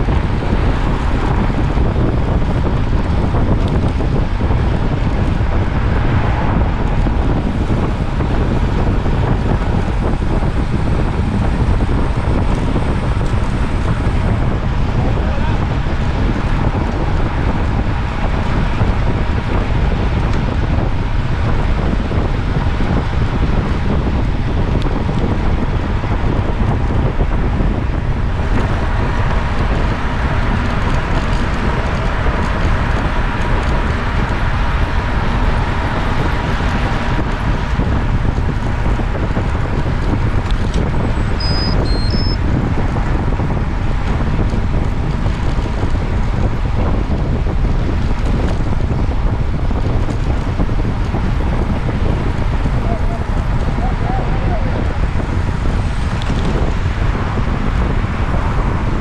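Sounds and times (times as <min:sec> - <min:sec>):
wind buffeting microphone: 0:00.0 - 0:59.0
short high-pitched beeps: 0:41.4 - 0:42.4.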